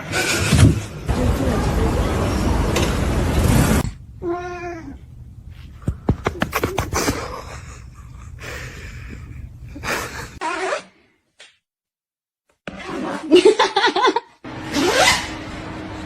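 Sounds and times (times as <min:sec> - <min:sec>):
loud rushing noise: 0:01.1 - 0:03.8.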